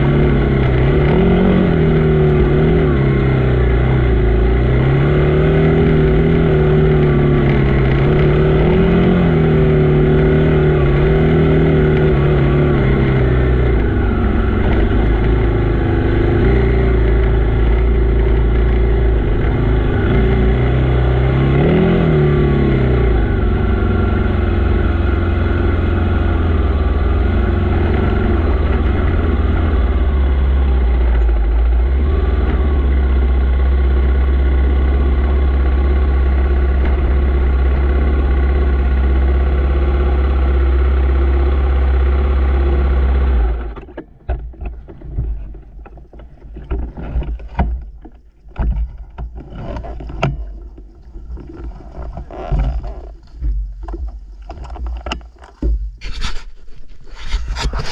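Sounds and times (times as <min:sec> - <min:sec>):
dirt bike engine idling: 0:00.0 - 0:44.2
clicks scuffs and rustles: 0:44.8 - 0:57.9.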